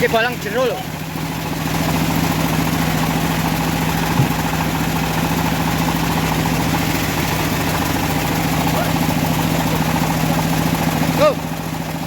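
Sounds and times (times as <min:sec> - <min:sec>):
sawmill engine running: 0:00.0 - 0:12.0
short knock: 0:04.1 - 0:04.4.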